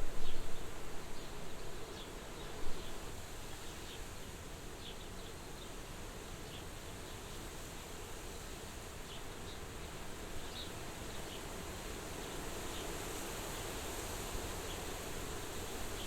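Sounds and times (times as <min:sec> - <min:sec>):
wind blowing at a window: 0:00.0 - 0:04.0.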